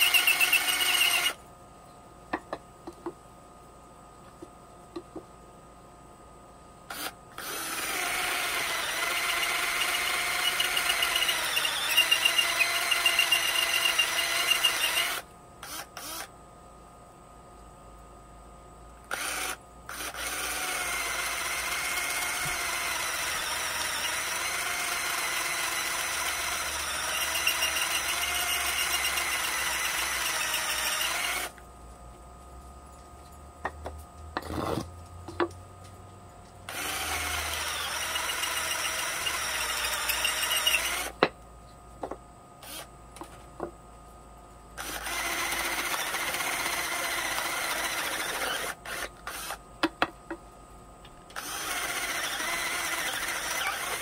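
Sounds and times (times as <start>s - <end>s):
electric drill boring into wood: 0.0s - 1.4s, 6.9s - 16.3s, 19.1s - 31.6s, 36.7s - 41.2s, 42.6s - 42.9s, 44.8s - 49.6s, 51.3s - 54.0s.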